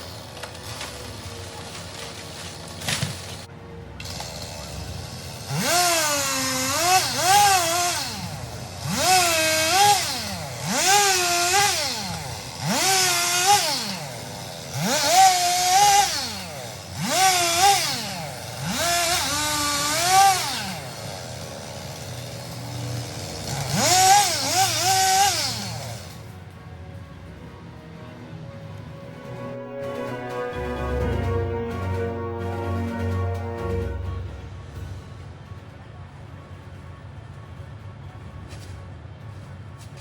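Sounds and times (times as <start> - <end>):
chainsaw revving: 0.0 - 26.3.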